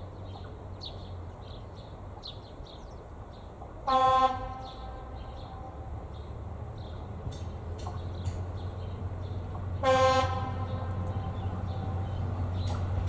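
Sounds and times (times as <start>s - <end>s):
railbus horn blast: 3.8s - 5.9s, 9.8s - 12.6s.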